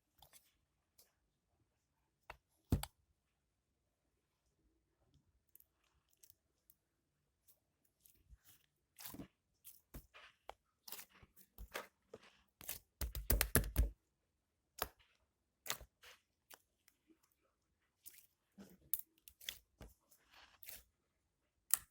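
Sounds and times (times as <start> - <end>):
sticky slime clicks and pops: 13.0 - 13.9.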